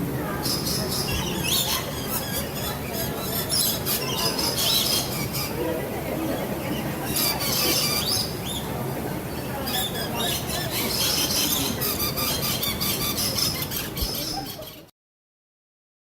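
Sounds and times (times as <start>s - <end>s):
parrots chattering and screeching: 0.4s - 5.7s, 6.7s - 8.6s, 9.3s - 14.9s.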